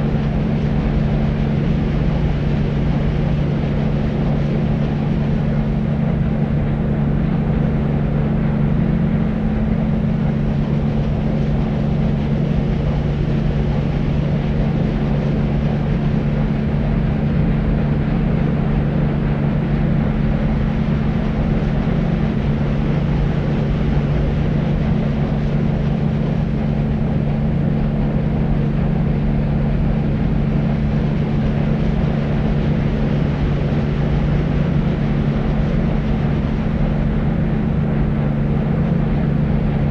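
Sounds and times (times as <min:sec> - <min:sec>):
deep white noise rumble: 0:00.0 - 0:39.9.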